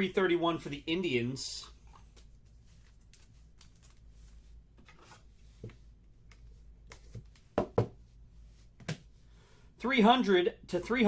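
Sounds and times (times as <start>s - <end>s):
low steady hum: 0.0s - 11.0s
cards tapping and rustling: 4.8s - 8.0s.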